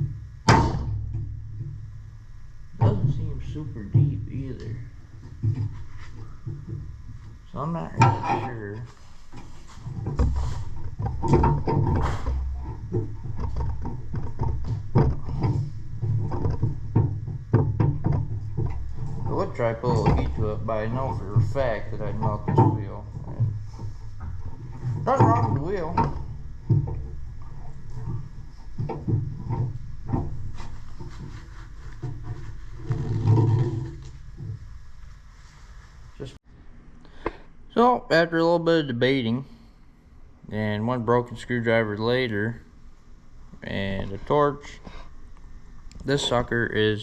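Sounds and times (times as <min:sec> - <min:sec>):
steady low hum: 0:00.0 - 0:47.0
sharp knocks on metal: 0:00.4 - 0:01.8
tool rubbing and scraping: 0:05.1 - 0:36.1.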